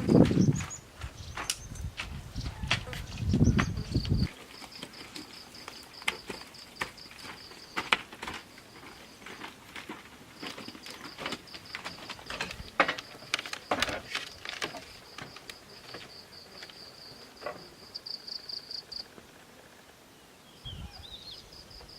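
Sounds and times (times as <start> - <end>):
insect trilling: 10.4 - 19.5.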